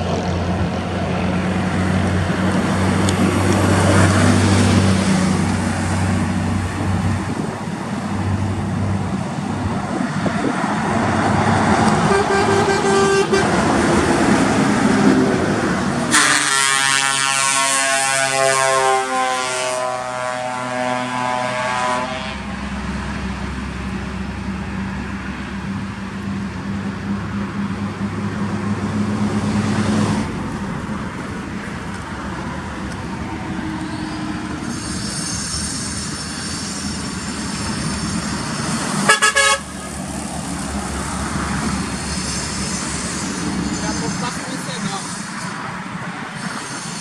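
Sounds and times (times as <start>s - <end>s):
truck engine and road noise: 0.0s - 47.0s
truck horn blasts: 11.8s - 15.4s, 16.0s - 22.8s, 39.0s - 40.0s.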